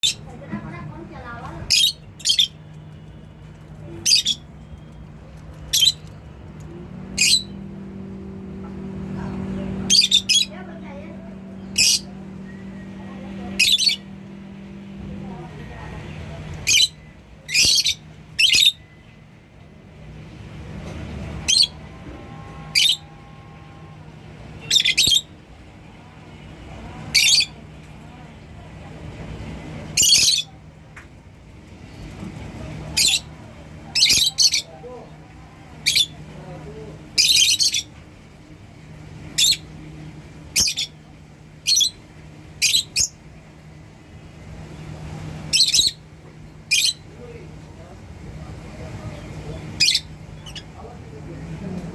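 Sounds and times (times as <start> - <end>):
lovebirds chirping: 1.2 - 3.1, 3.8 - 19.2, 21.1 - 24.0, 24.6 - 25.3, 40.5 - 41.0, 44.6 - 46.0, 49.0 - 51.9
lovebirds shrill squawks: 1.7 - 2.6, 4.0 - 4.6, 5.5 - 6.2, 7.2 - 7.6, 8.8 - 14.4, 16.5 - 18.8, 21.3 - 23.2, 24.6 - 25.3, 27.0 - 27.6, 30.0 - 30.5, 33.0 - 33.3, 33.9 - 34.8, 35.7 - 36.2, 37.2 - 37.9, 39.3 - 39.7, 40.5 - 41.0, 41.7 - 42.0, 42.6 - 43.2, 45.4 - 46.0, 46.7 - 47.1, 49.6 - 50.7.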